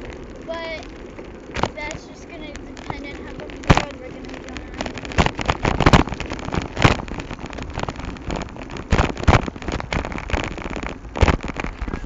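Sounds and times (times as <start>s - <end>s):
rough rushing noise: 0.0s - 12.0s
camera knocks and rattles: 4.6s - 12.0s.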